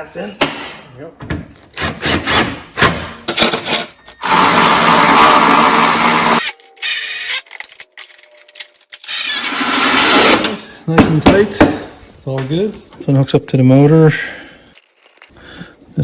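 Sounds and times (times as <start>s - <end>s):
parts clicking and knocking: 14.7s - 15.4s.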